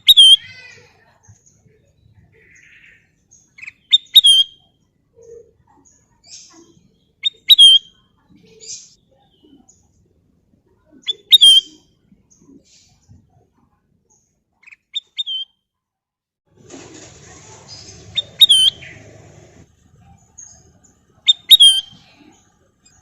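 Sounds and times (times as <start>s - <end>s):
soft bird chirps: 0.0s - 15.6s, 17.5s - 23.0s
bulbul calling: 17.7s - 23.0s.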